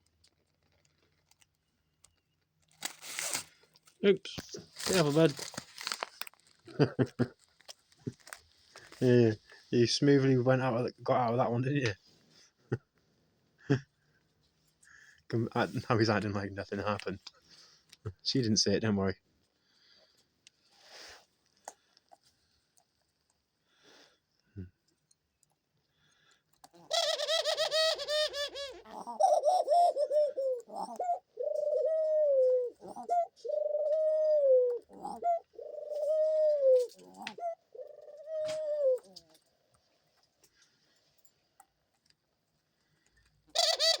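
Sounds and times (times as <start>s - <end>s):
dove cooing: 26.8s - 39.4s, 43.5s - 44.0s.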